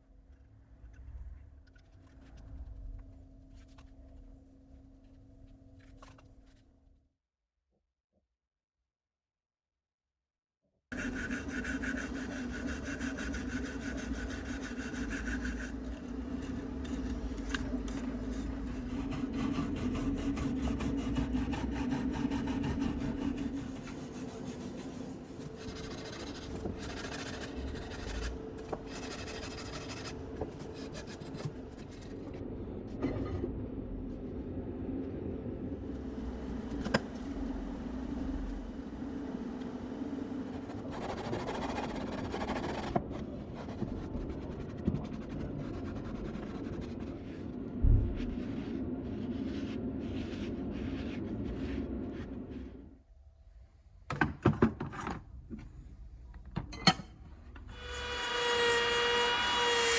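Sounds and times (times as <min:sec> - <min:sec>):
low hum: 0:14.2 - 0:54.0.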